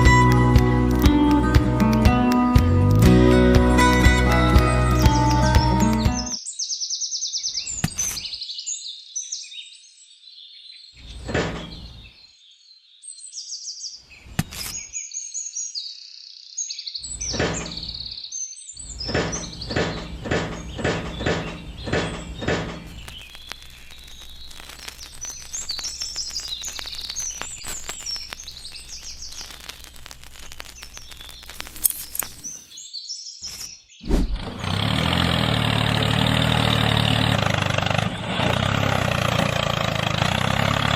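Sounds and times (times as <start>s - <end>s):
birds chirping: 4.6s - 34.5s
knocks: 19.1s - 23.1s
motor running loudly: 34.2s - 40.9s.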